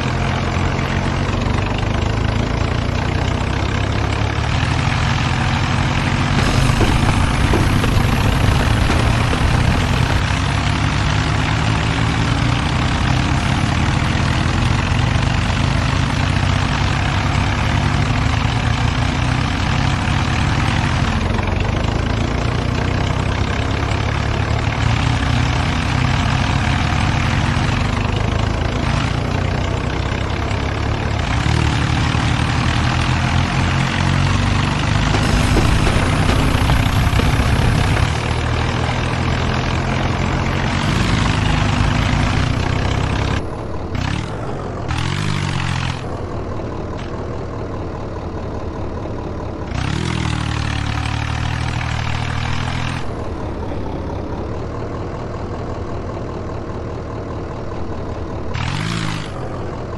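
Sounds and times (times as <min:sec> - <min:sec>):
tractor diesel engines under load: 0:00.0 - 0:59.9.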